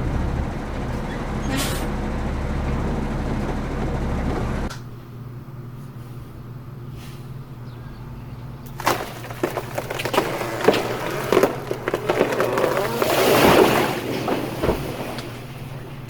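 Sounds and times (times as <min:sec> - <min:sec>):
tree splitting crash: 0:00.0 - 0:04.7, 0:08.7 - 0:16.0
truck engine running under load: 0:00.0 - 0:16.0
tree trunk cracking: 0:08.6 - 0:15.4.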